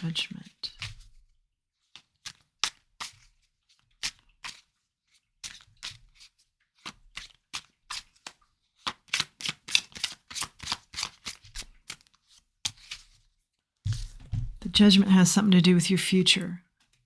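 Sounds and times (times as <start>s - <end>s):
cards being shuffled: 5.5s - 13.2s, 13.9s - 14.6s.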